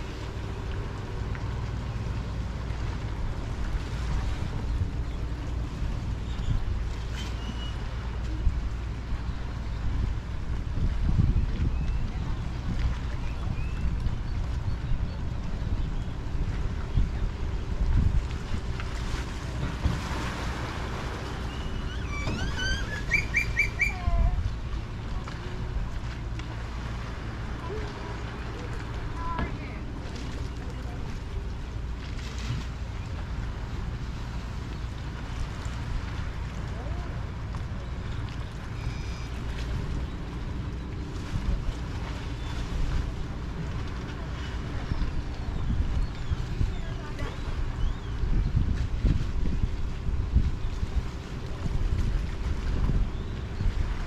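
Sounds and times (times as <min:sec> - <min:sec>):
water rumbling: 0:00.0 - 0:54.0
wind: 0:00.0 - 0:54.0
bird chirping: 0:21.5 - 0:24.0.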